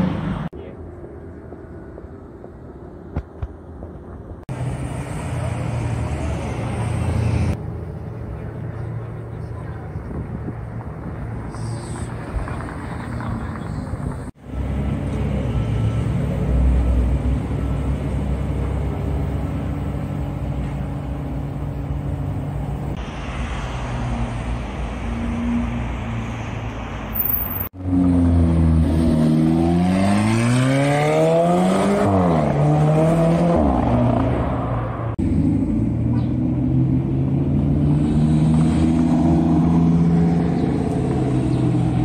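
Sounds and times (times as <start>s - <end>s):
car driving off: 10.1s - 42.0s.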